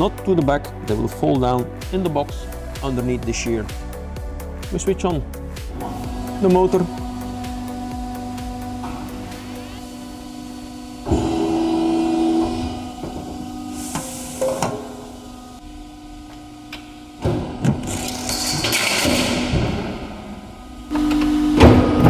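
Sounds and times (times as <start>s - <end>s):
shear motor humming: 2.4s - 18.7s.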